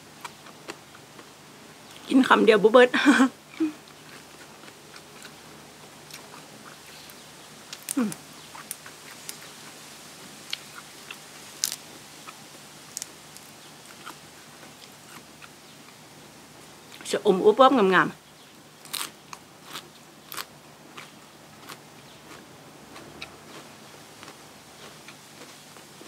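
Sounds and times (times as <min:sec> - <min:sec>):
person chewing food: 0:03.5 - 0:09.8, 0:10.5 - 0:16.0, 0:18.8 - 0:26.0
small crunches: 0:10.5 - 0:15.5, 0:18.8 - 0:22.4.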